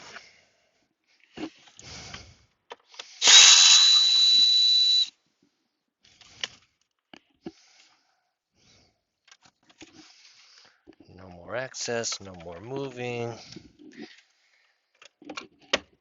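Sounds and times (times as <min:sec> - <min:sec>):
power tool whistling hiss: 0:03.2 - 0:05.1.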